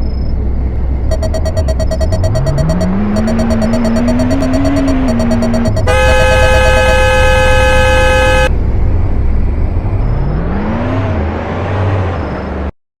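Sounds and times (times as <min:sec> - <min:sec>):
horn-like warning tone: 0:01.1 - 0:08.5.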